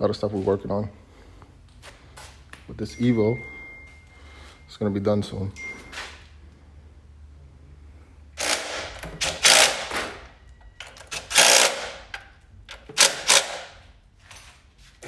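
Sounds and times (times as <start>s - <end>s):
impact wrench bursts: 8.4s - 13.9s.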